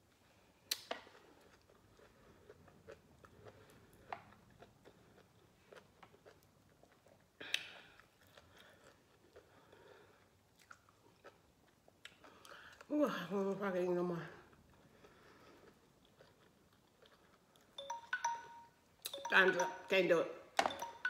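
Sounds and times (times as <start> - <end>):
wet chewing: 14.4 - 18.4.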